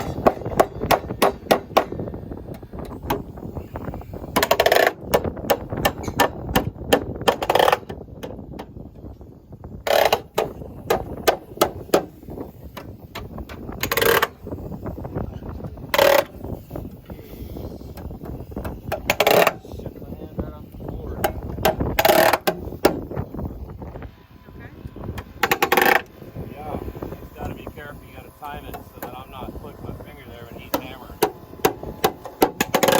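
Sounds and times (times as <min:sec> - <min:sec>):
hammer striking nails into metal: 0:00.0 - 0:02.0.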